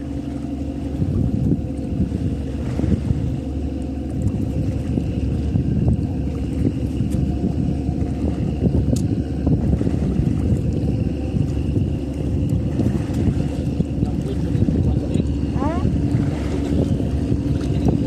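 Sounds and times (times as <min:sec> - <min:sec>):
boat motor rumbling: 0:00.0 - 0:18.0
wind buffeting microphone: 0:00.0 - 0:18.0.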